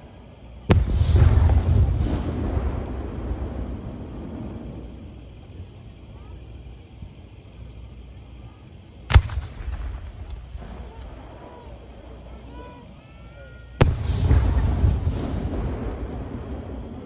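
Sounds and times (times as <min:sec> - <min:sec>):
rumbling firework echo: 0:00.0 - 0:17.0
firework shell bang: 0:09.1 - 0:11.8.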